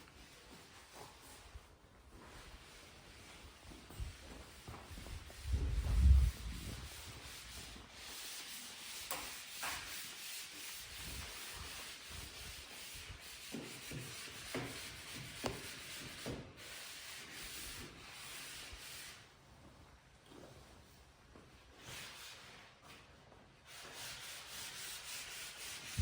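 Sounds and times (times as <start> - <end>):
sandpaper rubbing on wood: 2.4 - 19.3, 23.7 - 26.0.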